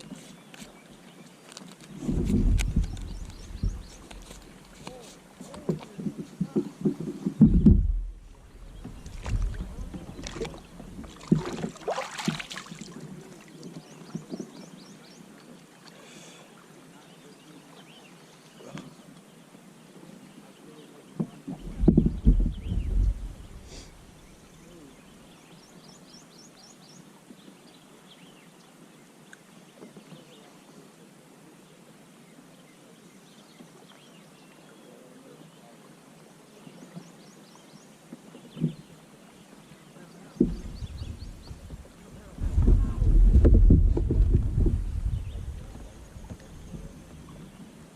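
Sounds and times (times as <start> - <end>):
paddle strokes splashing: 0.0 - 19.2, 33.5 - 47.9
hiss of water and wind: 0.0 - 47.9
low rumble: 7.4 - 11.1, 40.4 - 47.0.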